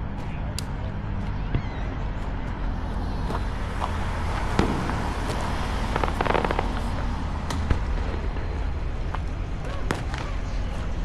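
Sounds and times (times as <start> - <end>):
fireworks crackling and popping: 3.3 - 10.4
fireworks bangs: 4.4 - 8.8.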